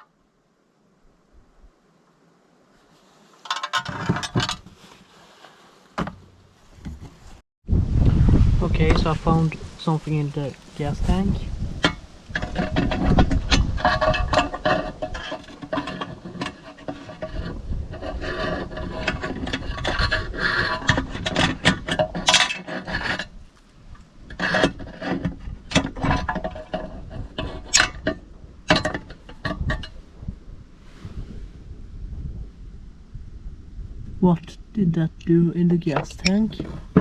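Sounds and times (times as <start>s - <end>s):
scraping and rubbing parts: 2.8s - 7.4s, 8.8s - 30.0s, 35.8s - 37.0s.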